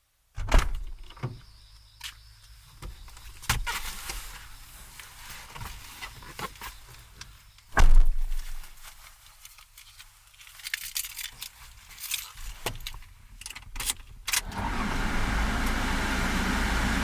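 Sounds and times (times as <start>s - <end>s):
van engine starting and idling: 14.3s - 17.0s.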